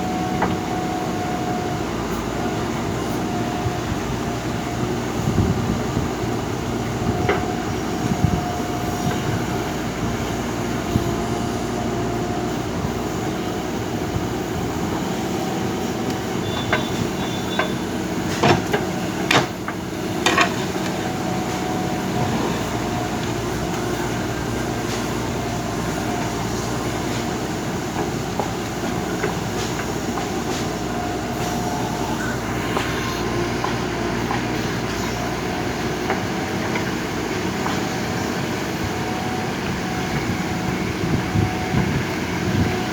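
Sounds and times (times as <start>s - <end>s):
backhoe diesel engine running: 0.0s - 42.9s.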